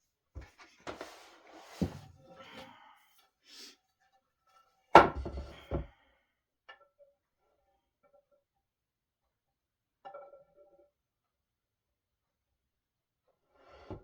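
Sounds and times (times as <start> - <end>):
wooden parts rustling and scraping: 0.4 - 2.6
wooden thud: 5.0 - 5.8.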